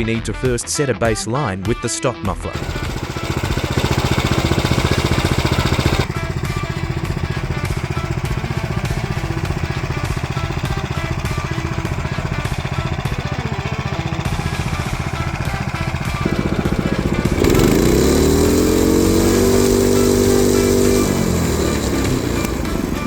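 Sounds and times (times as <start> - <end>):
small engine running: 2.5 - 23.0.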